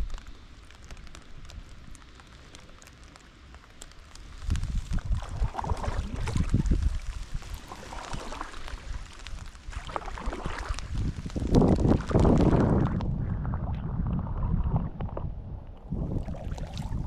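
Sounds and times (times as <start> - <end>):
splashing water: 0.7 - 13.0, 15.8 - 17.0
wind buffeting microphone: 4.4 - 17.0.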